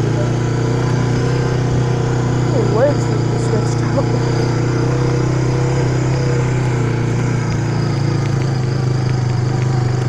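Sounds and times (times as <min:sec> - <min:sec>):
small vehicle engine running: 0:00.0 - 0:10.0.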